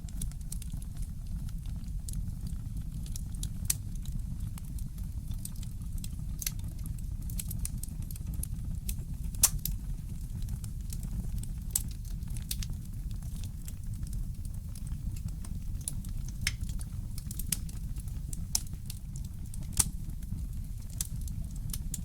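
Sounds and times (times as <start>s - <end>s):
fireplace fire crackling: 0.1s - 22.0s
sharp pops of fire: 8.9s - 22.0s.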